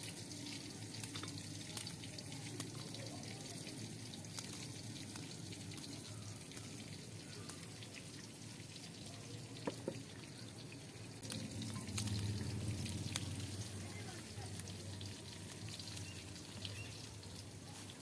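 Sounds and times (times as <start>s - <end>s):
water trickling and dripping: 0.0s - 18.0s.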